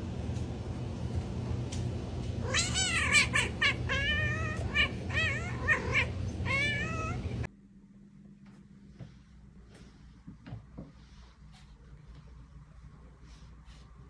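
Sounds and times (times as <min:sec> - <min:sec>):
steady low hum: 0:00.0 - 0:14.0
cat meowing: 0:02.4 - 0:07.4.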